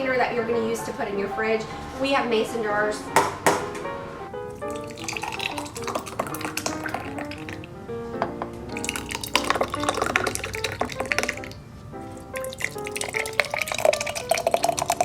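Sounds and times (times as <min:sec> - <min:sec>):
background music: 0:00.0 - 0:15.0
jelly pouring into glass jars: 0:04.6 - 0:07.7, 0:08.7 - 0:11.6, 0:12.3 - 0:15.0.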